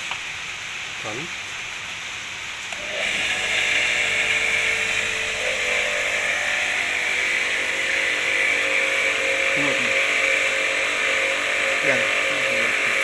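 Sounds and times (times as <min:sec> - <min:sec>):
jet cleaner motor running: 0:02.7 - 0:13.0.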